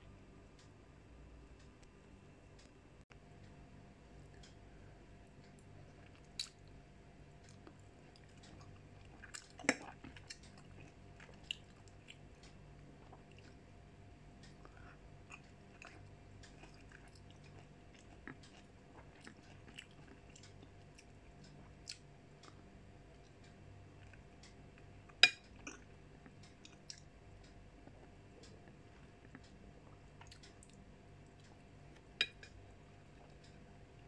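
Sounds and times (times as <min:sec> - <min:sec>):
faint steady hum: 0:00.0 - 0:34.0
person chewing mango: 0:05.4 - 0:06.8, 0:07.4 - 0:34.0.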